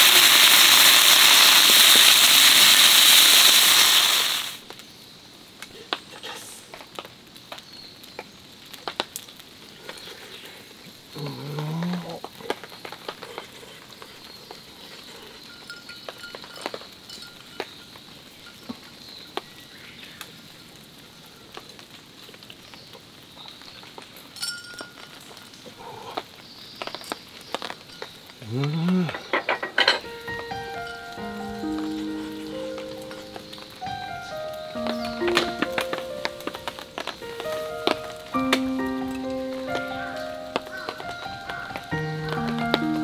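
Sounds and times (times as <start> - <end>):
meat sizzling in a pan: 0.0 - 4.7.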